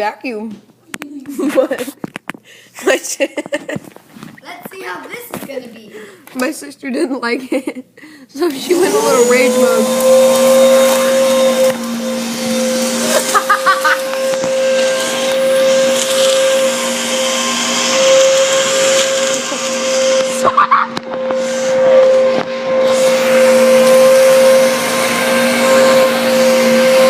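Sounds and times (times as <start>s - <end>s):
mini vacuum cleaner running: 8.4s - 27.0s.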